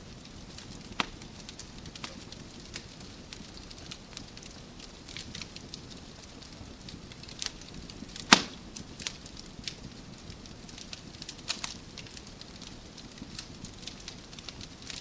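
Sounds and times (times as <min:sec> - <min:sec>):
low hiss: 0:00.0 - 0:10.6
wood fire crackling: 0:00.0 - 0:15.0.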